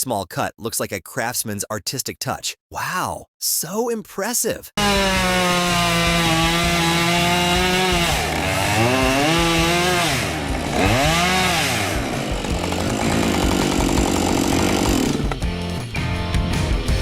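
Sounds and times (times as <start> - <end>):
chainsaw cutting wood: 4.8 - 15.8.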